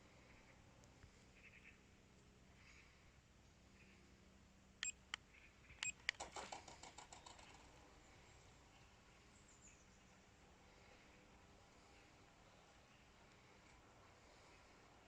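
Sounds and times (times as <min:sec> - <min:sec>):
faint bird chirps: 0:01.3 - 0:01.9, 0:07.1 - 0:10.3
rattling run of clicks: 0:05.9 - 0:07.8.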